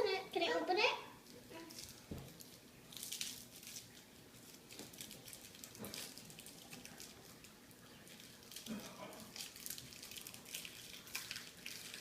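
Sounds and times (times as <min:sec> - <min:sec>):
candy wrapper crinkling: 0:01.2 - 0:12.0.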